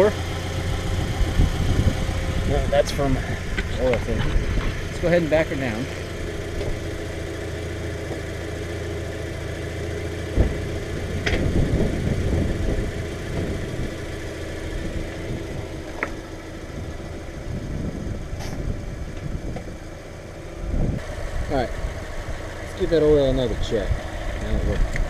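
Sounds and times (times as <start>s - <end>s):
car engine idling: 0.0s - 25.0s
sharp thump: 11.2s - 11.6s.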